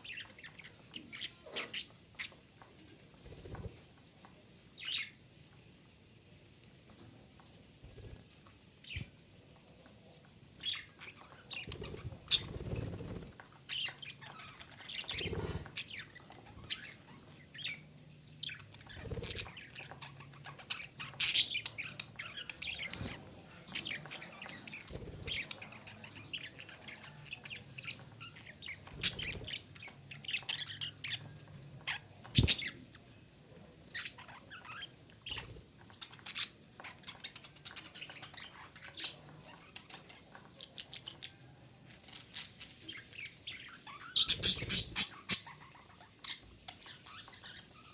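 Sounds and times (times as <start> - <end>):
budgerigar chirping: 44.1 - 45.6.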